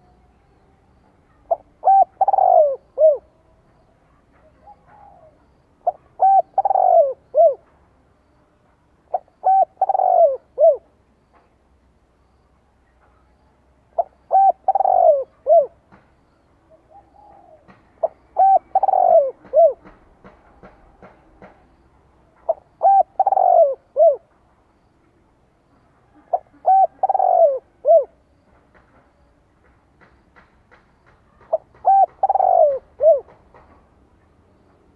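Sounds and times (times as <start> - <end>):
dove cooing: 1.3 - 3.5, 4.4 - 7.6, 9.1 - 10.9, 14.0 - 15.8, 16.7 - 20.0, 22.5 - 24.3, 26.1 - 28.2, 31.4 - 33.5.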